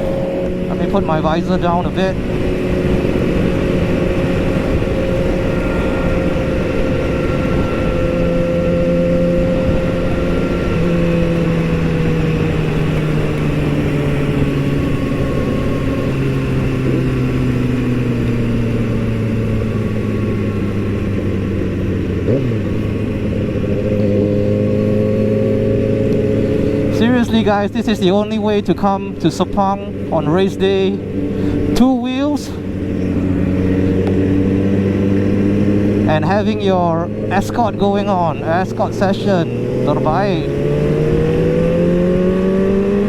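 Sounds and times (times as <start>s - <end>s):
heavy wind: 0.0s - 43.0s
motorcycle engine running: 0.0s - 43.0s
road rumble: 0.0s - 43.0s.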